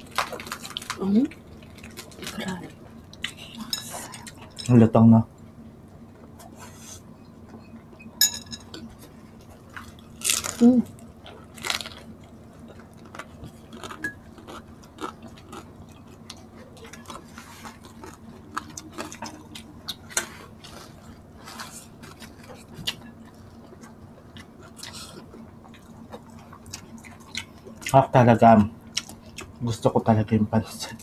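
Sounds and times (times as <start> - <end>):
food crunches: 0.0 - 2.4, 9.5 - 21.1
faint steady hum: 0.0 - 31.0.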